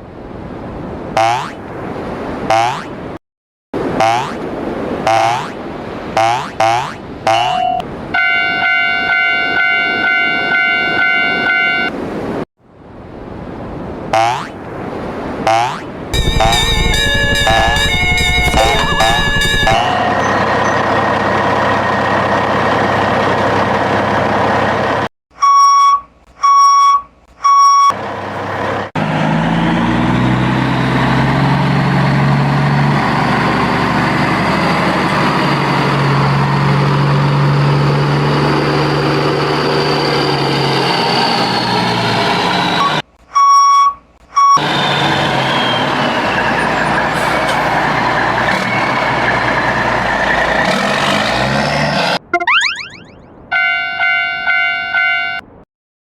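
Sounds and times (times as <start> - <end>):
electronic beeps: 6.2 - 7.8, 15.5 - 20.8, 52.3 - 53.2
train passing rumble: 16.1 - 25.1, 44.6 - 51.5.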